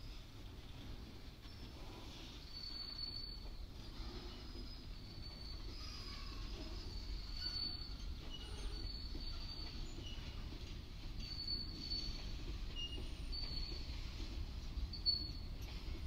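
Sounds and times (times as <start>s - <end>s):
train wheels rumbling on rails: 0.0s - 16.0s
high-pitched wheel squeals: 2.4s - 10.6s.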